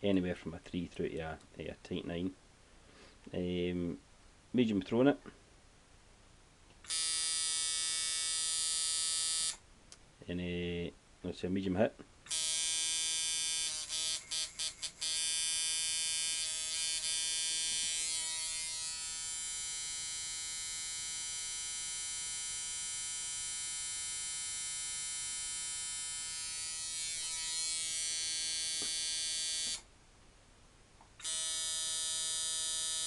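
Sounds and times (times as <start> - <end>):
tattoo machine electric buzz: 6.9 - 9.6, 12.3 - 29.8, 31.2 - 33.0.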